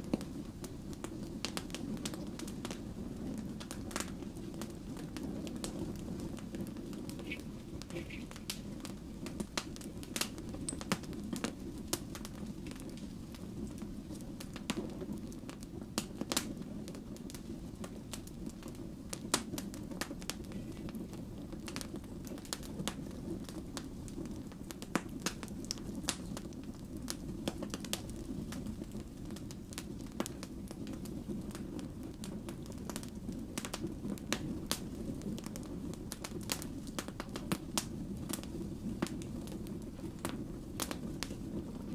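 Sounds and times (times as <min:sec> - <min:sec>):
burning logs popping and crackling: 0:00.0 - 0:41.9
low rumble of flames: 0:00.0 - 0:41.9.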